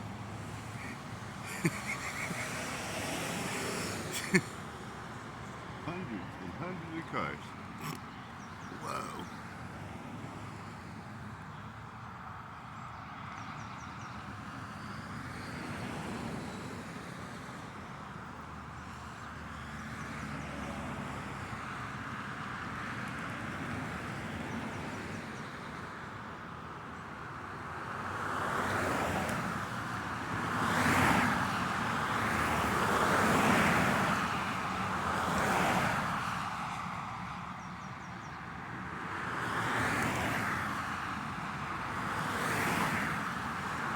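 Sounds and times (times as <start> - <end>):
loud vehicles passing: 0.0 - 10.5, 28.5 - 43.9
hum of passing cars: 0.0 - 43.9.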